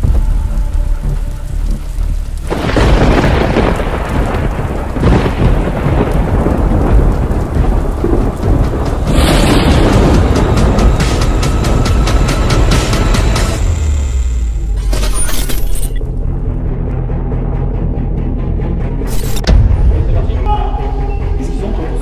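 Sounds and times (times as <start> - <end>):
heavy rain hissing: 0.0 - 14.7
thunder rumbling: 0.0 - 14.8.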